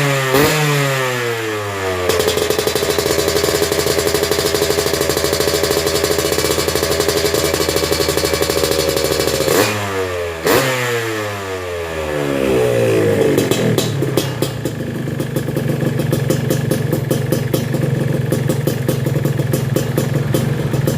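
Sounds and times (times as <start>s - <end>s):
motorcycle engine revving: 0.0s - 20.9s
engine idling with popping: 2.0s - 9.7s, 13.4s - 20.9s.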